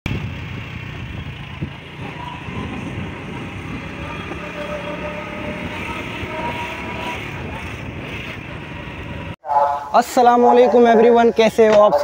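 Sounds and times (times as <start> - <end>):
train rumbling on rails: 0.1 - 9.4.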